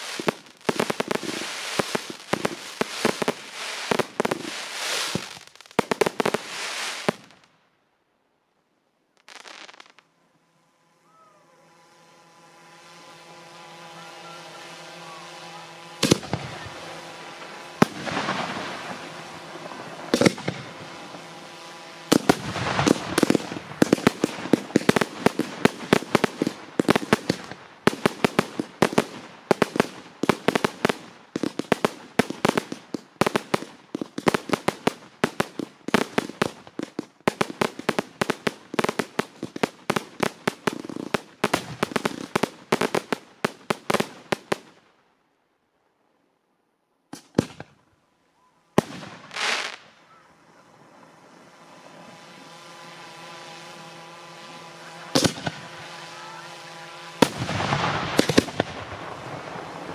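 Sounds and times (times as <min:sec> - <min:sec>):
fireworks bangs: 0:00.0 - 0:07.5, 0:09.1 - 0:10.4, 0:11.8 - 0:44.8, 0:47.1 - 0:47.9, 0:48.7 - 0:59.9
steady hum: 0:09.8 - 0:30.2, 0:49.8 - 0:59.9.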